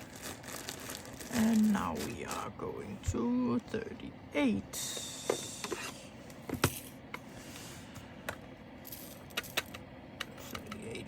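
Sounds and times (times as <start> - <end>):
plastic bags crinkling: 0.0 - 2.6.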